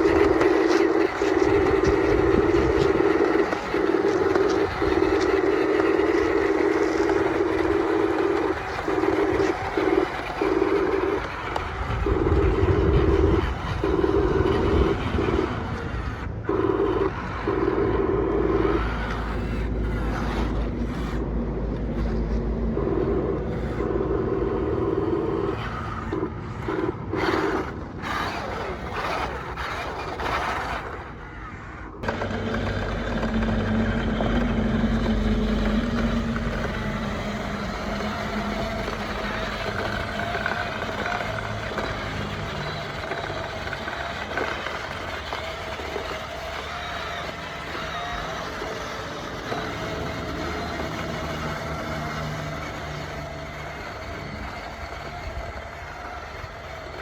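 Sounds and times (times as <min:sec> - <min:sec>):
scraping and rumbling: 0:00.0 - 0:57.0
small electric motors whining: 0:00.0 - 0:57.0.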